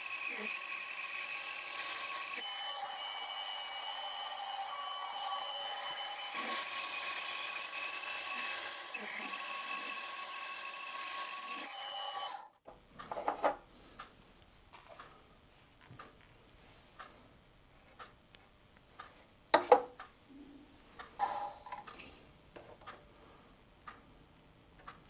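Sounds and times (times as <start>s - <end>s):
drill bit cutting metal: 0.0s - 12.2s.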